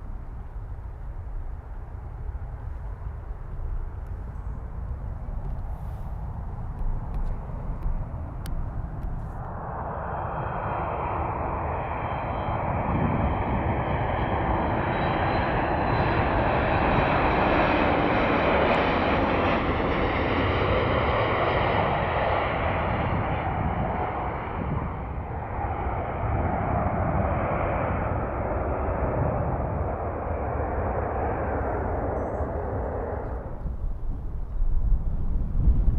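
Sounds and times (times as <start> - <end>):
jet airliner engines passing by: 0.0 - 35.9.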